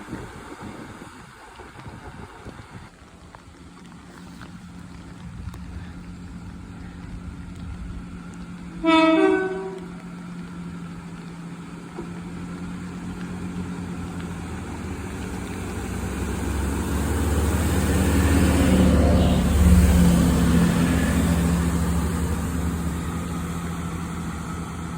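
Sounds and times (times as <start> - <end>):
train rumble: 0.0 - 24.9
two-tone train horn: 8.8 - 10.0, 19.0 - 20.0.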